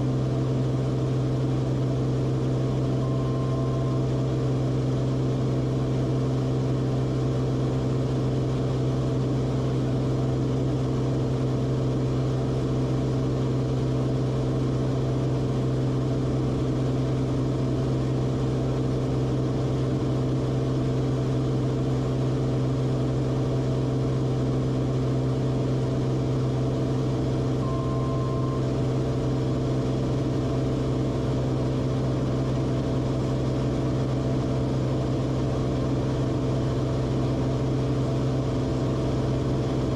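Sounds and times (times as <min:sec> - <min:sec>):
airplane engine and propeller droning: 0:00.0 - 0:39.9
short steady beep: 0:03.0 - 0:04.1, 0:27.6 - 0:28.7.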